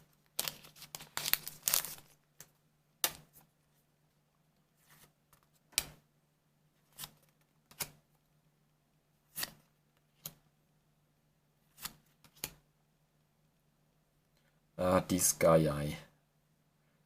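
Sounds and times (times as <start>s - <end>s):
cards rustling and sliding: 0.0s - 3.5s, 4.7s - 6.0s, 6.8s - 8.0s, 9.3s - 10.4s, 11.7s - 12.6s.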